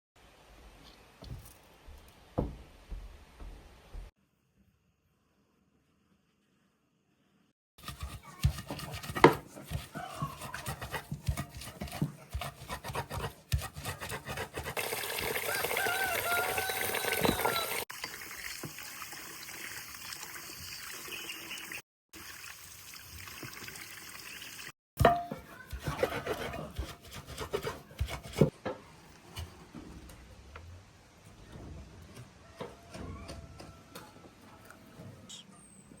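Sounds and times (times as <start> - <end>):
water trickling: 16.6 - 24.7
objects knocking and clattering: 25.0 - 25.9.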